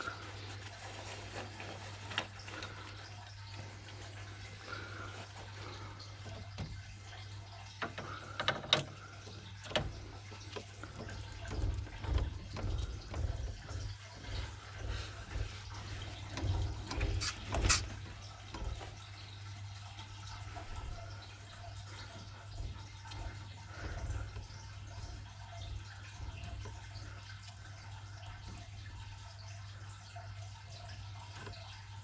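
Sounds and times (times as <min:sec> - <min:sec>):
water running and dripping: 0:00.0 - 0:32.0
sharp clicks and knocks: 0:07.8 - 0:09.0, 0:09.6 - 0:18.9.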